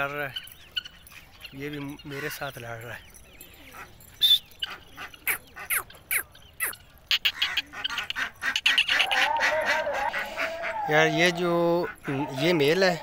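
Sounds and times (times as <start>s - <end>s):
bird chirps and calls: 0.0s - 9.3s.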